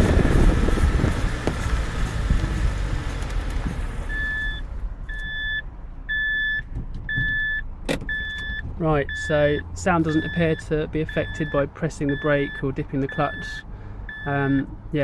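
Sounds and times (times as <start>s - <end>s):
car driving noise: 0.0s - 15.0s
reversing warning beeps: 4.1s - 14.7s.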